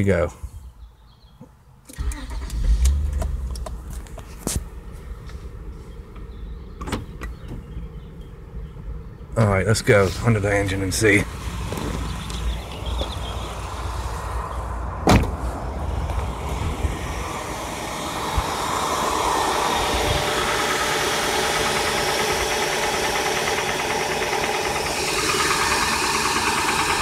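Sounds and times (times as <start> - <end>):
car engine idling with knock: 11.2 - 13.8, 15.0 - 27.0.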